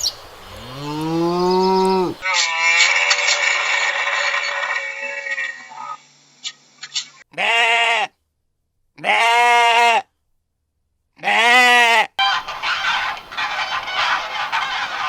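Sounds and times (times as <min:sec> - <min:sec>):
livestock bleating: 0:00.5 - 0:05.9, 0:07.3 - 0:08.2, 0:09.0 - 0:10.1, 0:11.2 - 0:15.0.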